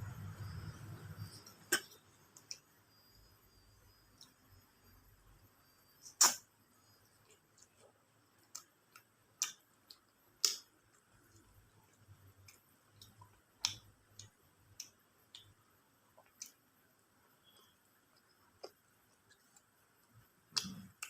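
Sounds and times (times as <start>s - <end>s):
mouth clicks and smacks chewing: 8.4s - 16.6s, 17.4s - 21.0s.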